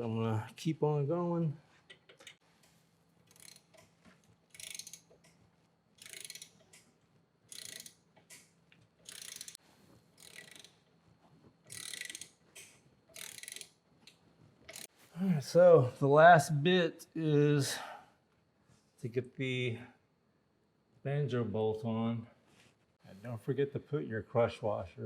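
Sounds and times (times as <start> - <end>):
ratchet wrench clicking: 3.2 - 3.9, 4.5 - 5.3, 6.0 - 6.9, 7.5 - 9.6, 10.2 - 10.8, 11.7 - 13.8, 14.7 - 14.9.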